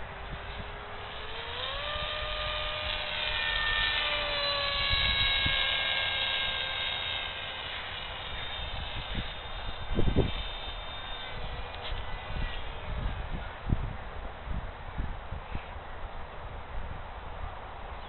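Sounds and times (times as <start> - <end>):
rc plane motor whine: 0.0 - 14.1.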